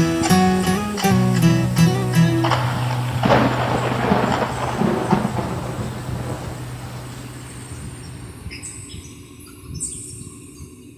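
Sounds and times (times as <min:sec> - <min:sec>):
held low bass note: 0:00.0 - 0:09.0
thunder and rain effect: 0:02.4 - 0:08.9.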